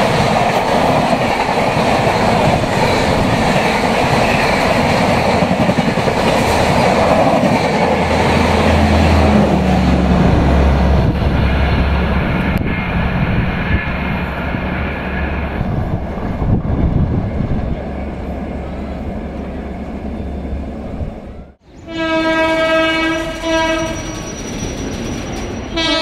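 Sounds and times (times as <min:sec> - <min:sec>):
train wheels running over rails: 0:00.0 - 0:14.8.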